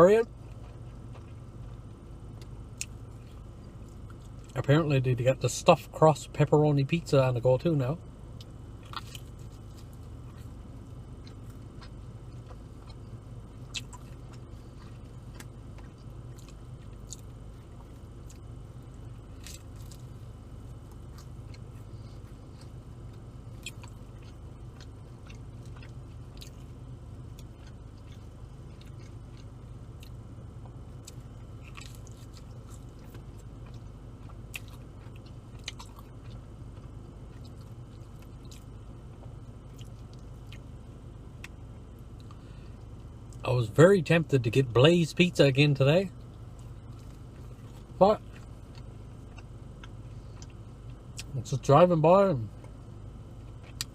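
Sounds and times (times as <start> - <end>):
steady low hum: 0.0 - 53.9
chewing and biting food: 0.4 - 4.7, 8.4 - 40.8, 46.2 - 51.4, 52.5 - 53.9
mouth clicks and crunches: 8.4 - 10.6, 11.2 - 26.7, 27.3 - 40.7, 46.2 - 51.4, 53.4 - 53.9.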